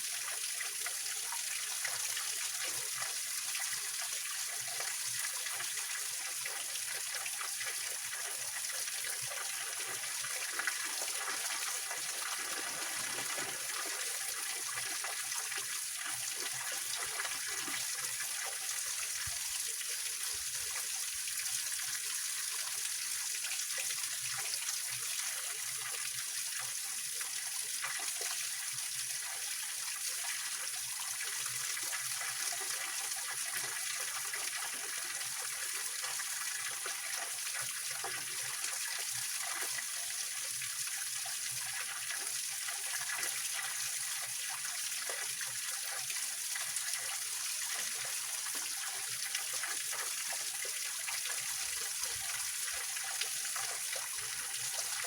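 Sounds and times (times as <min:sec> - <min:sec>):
water splashing over rocks: 0:10.7 - 0:14.4.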